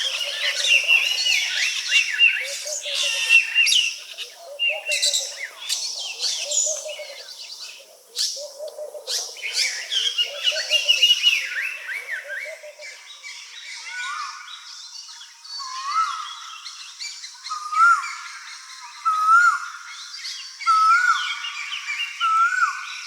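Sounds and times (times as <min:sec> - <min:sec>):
birds chirping and whistling: 0:00.0 - 0:12.9
low repeated bird call: 0:00.0 - 0:13.1.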